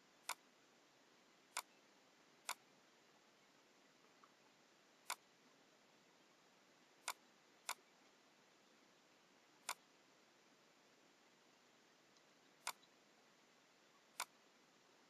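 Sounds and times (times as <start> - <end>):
faint steady hiss: 0.0 - 15.0
computer mouse buttons clicking: 1.5 - 1.8, 9.6 - 9.9, 12.6 - 12.9, 14.1 - 14.4.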